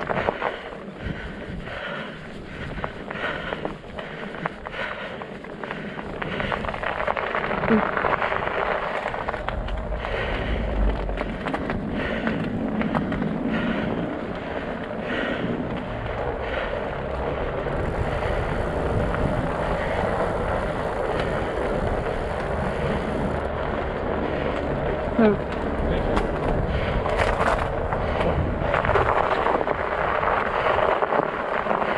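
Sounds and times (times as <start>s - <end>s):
small clicks and crunches: 0.0s - 0.9s, 2.6s - 13.5s, 25.4s - 31.9s
bike tires rolling over ice and snow: 0.0s - 31.9s.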